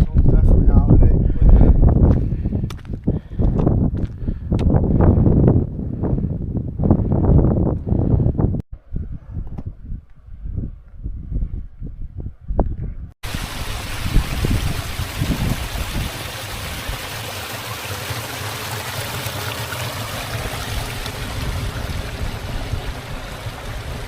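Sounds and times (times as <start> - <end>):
mountain water rushing: 13.2 - 24.0.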